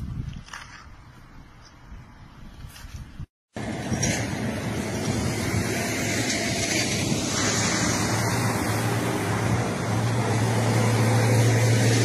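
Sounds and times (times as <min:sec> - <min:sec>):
car engine hum: 0:03.6 - 0:12.0.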